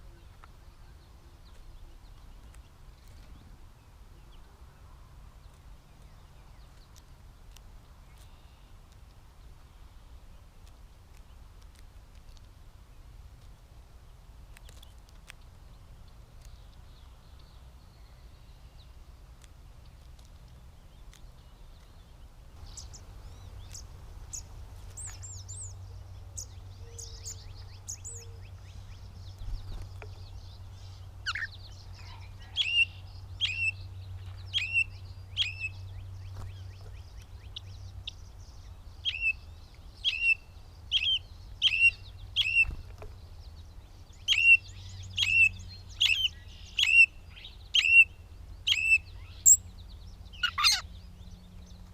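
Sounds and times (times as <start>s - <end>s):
steady low hum: 0.0s - 51.9s
faint high bird chirps: 22.6s - 43.2s, 44.0s - 51.7s.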